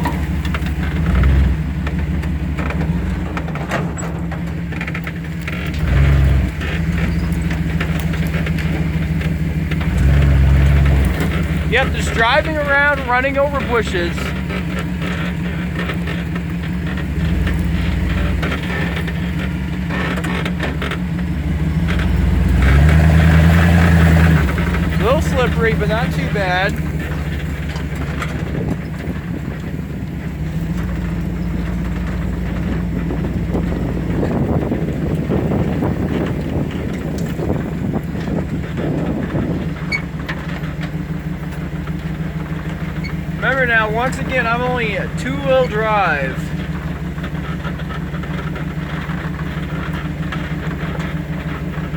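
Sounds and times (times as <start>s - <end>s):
knocks and rattles: 0.0s - 21.2s
truck engine under load: 0.0s - 51.9s.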